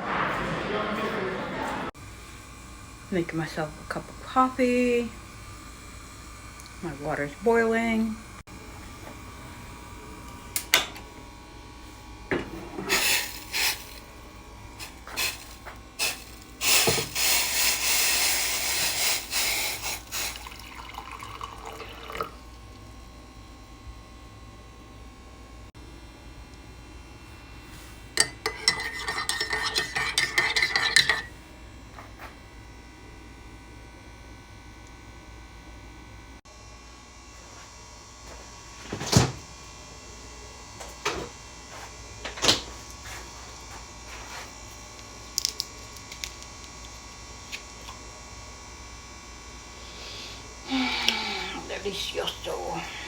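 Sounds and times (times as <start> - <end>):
spoon clinking in mug: 28.2 - 31.3.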